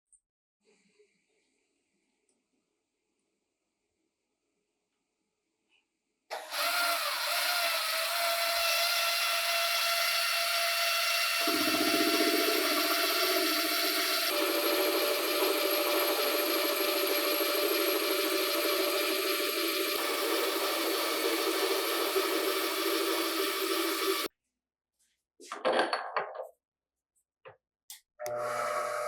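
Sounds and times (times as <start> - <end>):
power tool whining: 6.3 - 24.3.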